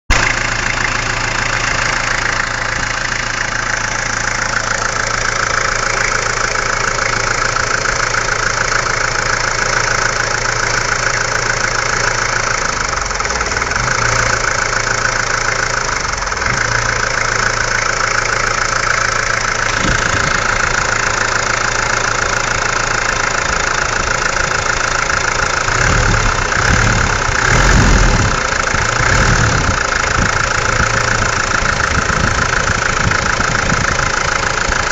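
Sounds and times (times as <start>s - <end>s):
diesel engine idling: 0.1s - 34.9s.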